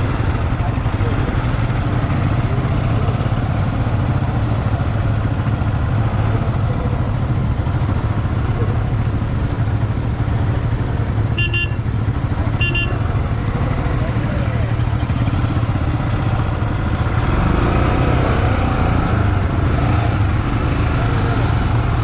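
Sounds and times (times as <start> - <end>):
vehicle engine and road rumble: 0.0 - 22.0
vehicle horn toot: 11.4 - 11.9, 12.5 - 13.1.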